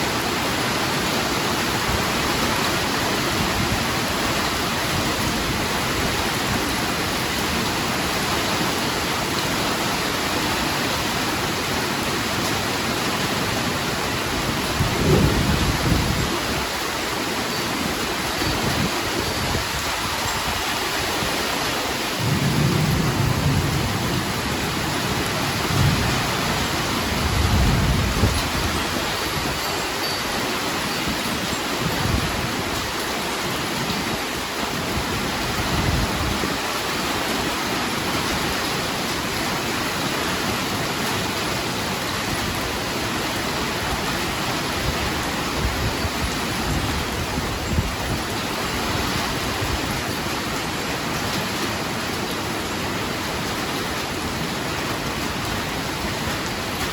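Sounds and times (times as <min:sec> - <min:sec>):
heavy rain: 0:00.0 - 0:56.9
rolling thunder: 0:14.8 - 0:16.2, 0:22.2 - 0:24.7, 0:25.5 - 0:28.6.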